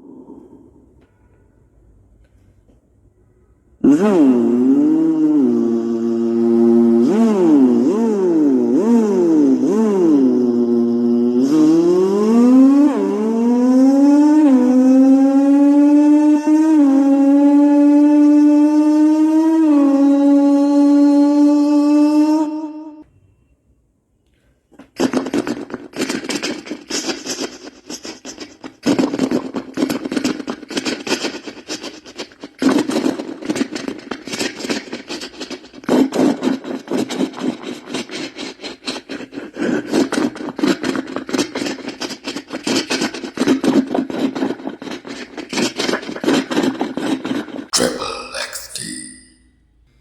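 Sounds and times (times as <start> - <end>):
person imitating an engine: 3.8 - 23.0, 24.8 - 49.4.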